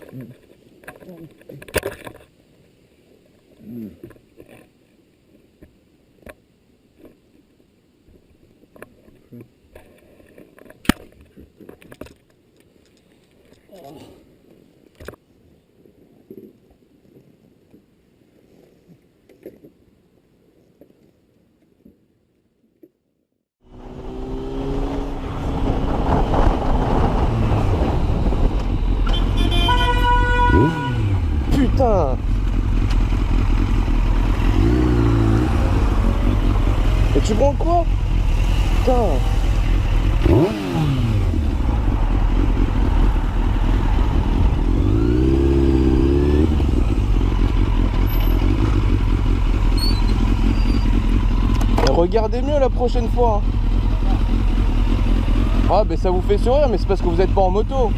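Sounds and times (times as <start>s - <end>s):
motorcycle running: 23.6s - 57.9s
road and wind noise: 23.6s - 57.9s
wind noise on microphone: 25.0s - 30.7s
vehicle horn: 29.0s - 31.3s.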